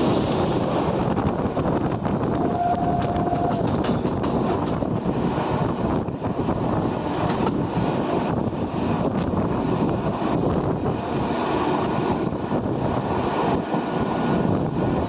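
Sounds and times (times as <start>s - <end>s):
train rumbling past: 0.0s - 15.0s
train horn tone: 2.2s - 3.9s
wheels clacking over rails: 3.0s - 5.2s.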